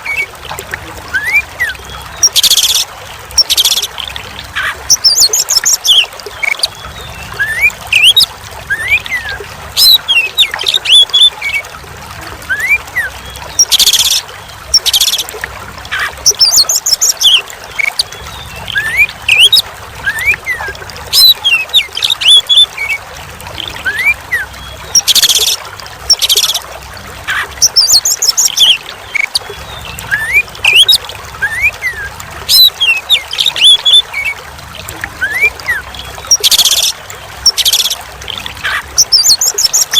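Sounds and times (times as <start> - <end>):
trickle of running water: 0.0 - 39.9
bird whistled song: 4.6 - 11.3, 16.0 - 23.0, 23.8 - 26.6, 27.6 - 34.3, 35.2 - 38.0, 38.6 - 39.9.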